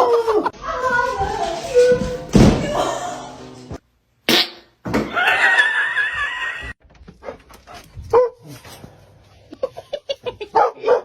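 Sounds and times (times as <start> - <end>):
dog barking: 8.1 - 8.5, 10.5 - 11.0.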